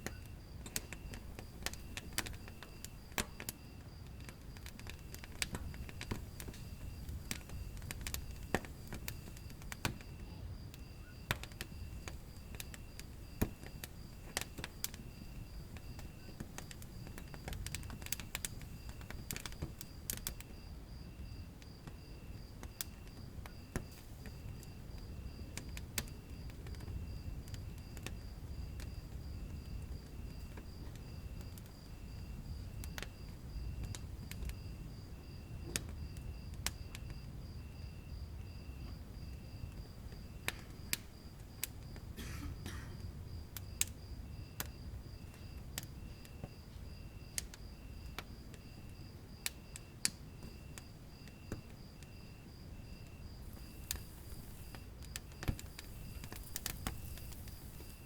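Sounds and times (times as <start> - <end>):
wood fire crackling: 0.0 - 58.0
faint high chirp: 10.1 - 11.3.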